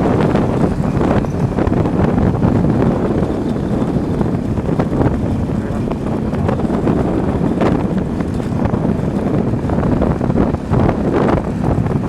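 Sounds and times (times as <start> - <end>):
vehicle noise: 0.0 - 12.0
wind rumbling on microphone: 0.0 - 12.0.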